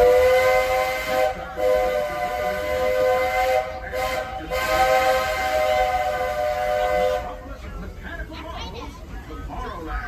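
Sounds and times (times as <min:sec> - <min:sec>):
steam locomotive chime whistle: 0:00.0 - 0:07.4.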